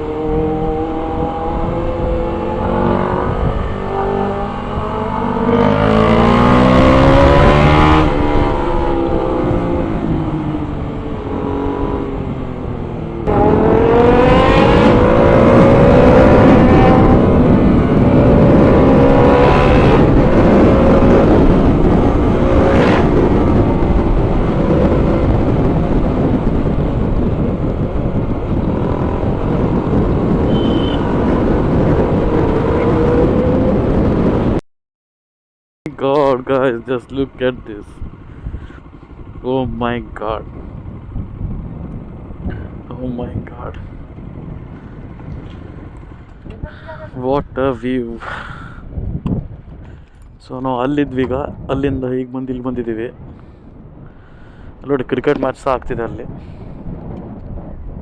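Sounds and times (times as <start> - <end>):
motorcycle engine revving and accelerating: 0.0 - 34.6.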